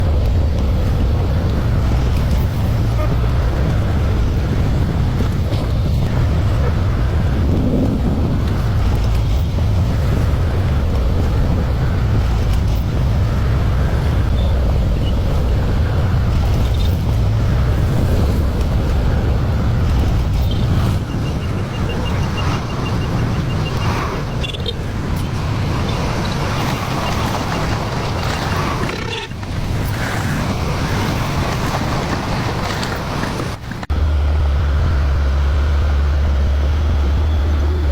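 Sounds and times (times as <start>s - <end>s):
excavator diesel engine rumbling: 0.0s - 37.9s.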